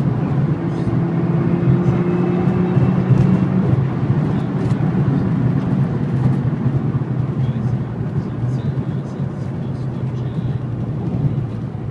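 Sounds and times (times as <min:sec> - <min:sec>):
road and wind noise: 0:00.0 - 0:11.9
vehicle engine droning: 0:00.0 - 0:11.9.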